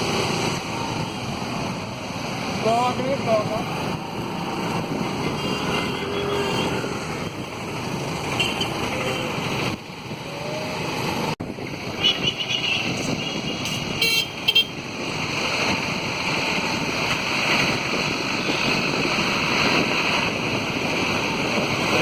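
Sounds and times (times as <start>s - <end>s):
road traffic rushing: 0.0s - 22.0s
vehicle horns tooting: 5.3s - 6.9s, 8.4s - 9.4s, 12.0s - 14.8s.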